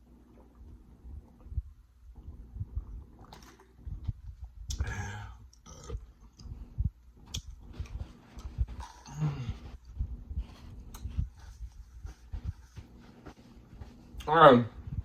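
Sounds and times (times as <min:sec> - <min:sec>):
mouth clicks and smacks: 0:04.5 - 0:06.6, 0:07.2 - 0:09.1, 0:10.8 - 0:11.2
person chewing: 0:04.7 - 0:11.8.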